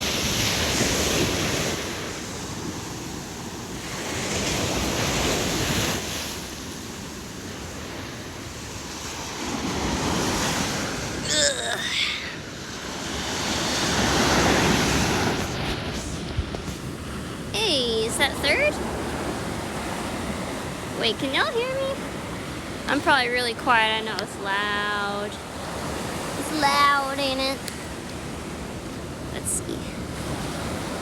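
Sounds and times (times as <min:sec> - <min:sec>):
ocean surf breaking: 0:00.0 - 0:31.0
wind buffeting microphone: 0:12.4 - 0:31.0.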